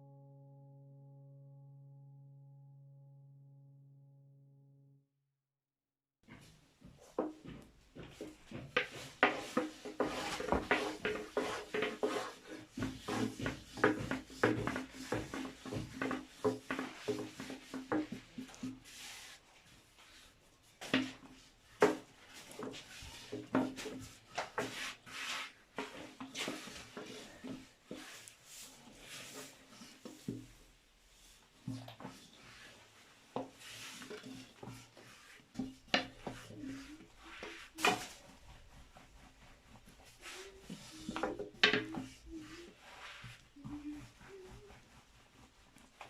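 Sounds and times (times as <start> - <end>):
objects knocking and rubbing: 6.2 - 46.0.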